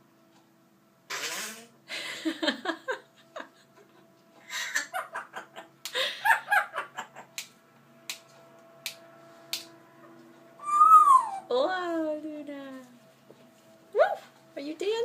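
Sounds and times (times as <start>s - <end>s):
parrot chattering: 10.6s - 11.5s.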